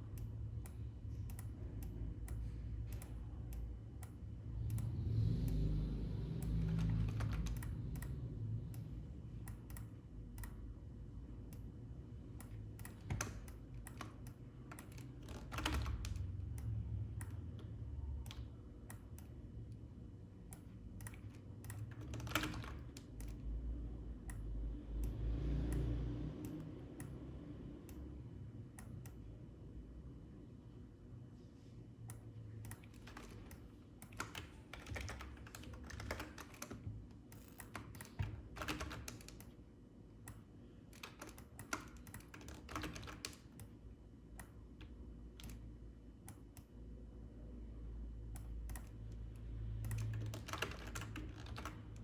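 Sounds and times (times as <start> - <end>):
computer keyboard clicking: 0.0 - 10.6, 12.3 - 19.4, 20.5 - 23.5, 32.1 - 39.6, 40.2 - 43.8, 44.4 - 45.6, 48.3 - 52.0.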